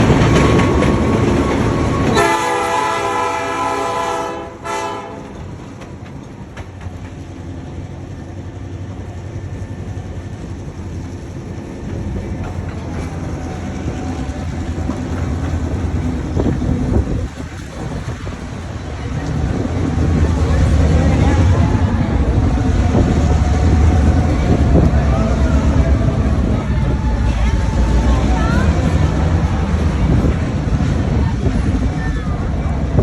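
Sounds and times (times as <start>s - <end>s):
train horn chord: 2.1s - 5.4s.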